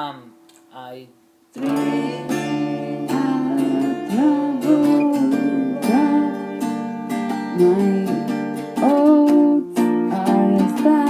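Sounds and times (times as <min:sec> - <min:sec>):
sliding guitar melody: 0:01.6 - 0:11.0
strummed acoustic guitar: 0:01.6 - 0:11.0.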